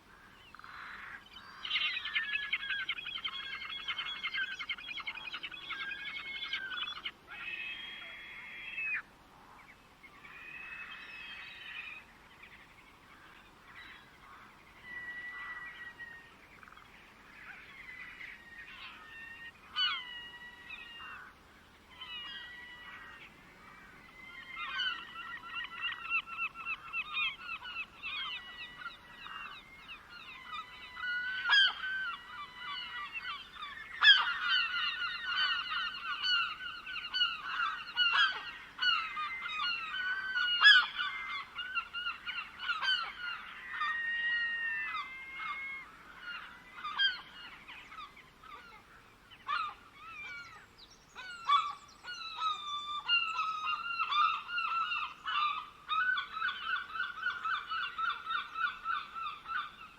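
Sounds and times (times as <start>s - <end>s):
birds calling and singing: 0.1s - 59.9s.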